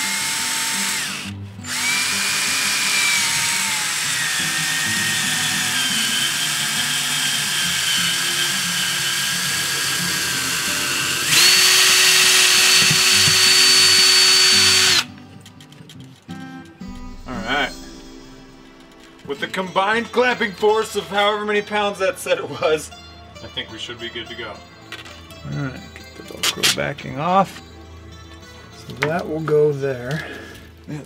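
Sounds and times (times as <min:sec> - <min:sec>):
power drill whining: 0:00.0 - 0:15.1.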